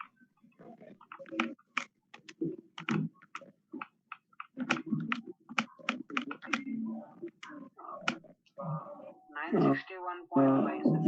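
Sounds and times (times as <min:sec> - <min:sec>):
sharp clicks and taps: 0:01.0 - 0:06.7.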